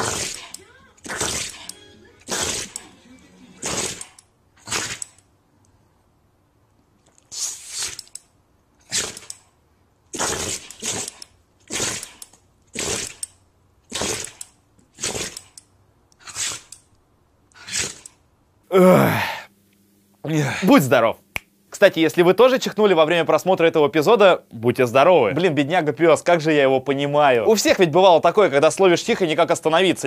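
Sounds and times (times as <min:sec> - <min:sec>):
dog sneezing: 0:00.0 - 0:01.7, 0:02.3 - 0:02.8, 0:03.6 - 0:05.0, 0:07.3 - 0:08.0, 0:08.9 - 0:09.3, 0:10.2 - 0:13.2, 0:13.9 - 0:14.4, 0:15.0 - 0:15.5, 0:16.2 - 0:16.7, 0:17.6 - 0:18.0.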